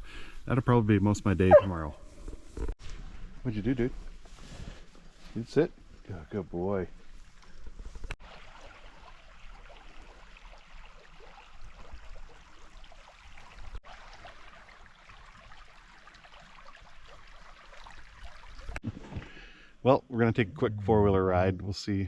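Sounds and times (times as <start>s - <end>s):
creek water rushing: 8.2s - 18.8s.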